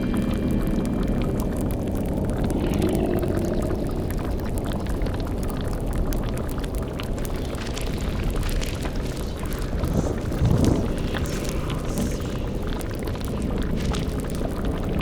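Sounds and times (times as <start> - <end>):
bubbling boiling liquid: 0.0 - 15.0
faint crackling: 4.1 - 15.0
low rumble: 7.0 - 15.0.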